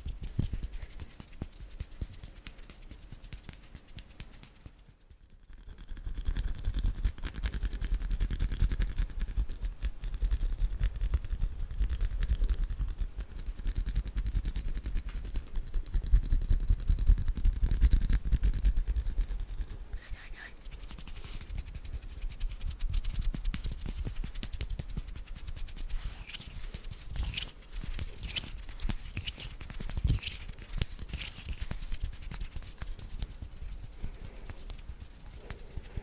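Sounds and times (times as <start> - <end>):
hands rubbing on microphone: 0.0 - 36.0
brushing rustle: 19.0 - 36.0.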